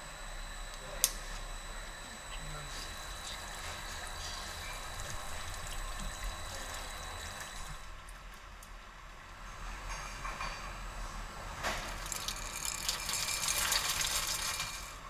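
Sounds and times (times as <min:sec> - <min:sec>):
pressurised gas venting hiss: 0:09.4 - 0:15.0.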